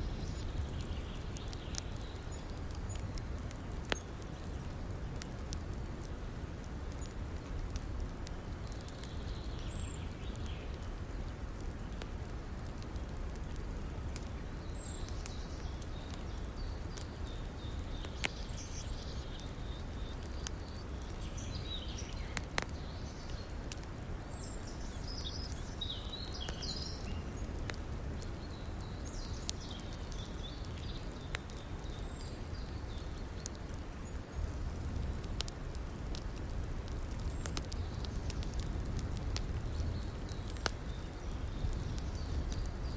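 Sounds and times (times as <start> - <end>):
birds chirping: 0.0 - 4.7, 14.5 - 23.6, 24.2 - 42.9
wood fire crackling: 0.0 - 42.9.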